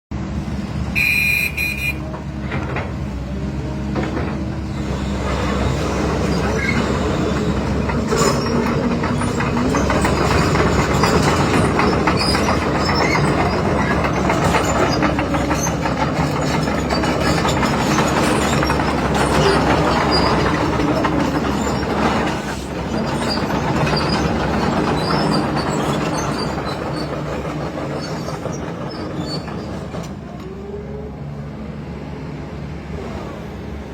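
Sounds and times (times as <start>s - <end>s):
excavator diesel engine running: 0.1s - 33.9s
high beep: 1.0s - 2.0s.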